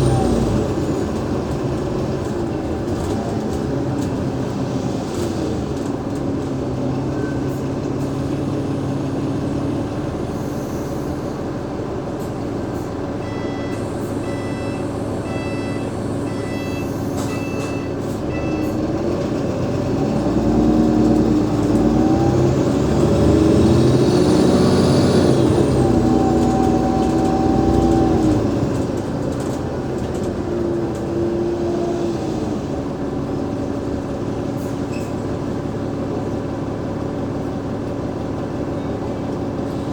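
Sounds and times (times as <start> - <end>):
bus engine pulling away: 0.0 - 39.9
short electronic beeps: 13.2 - 18.7.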